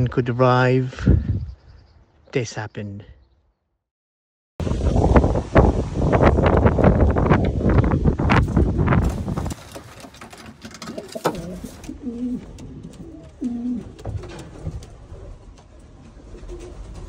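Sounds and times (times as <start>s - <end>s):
pigeon cooing: 10.7s - 14.1s.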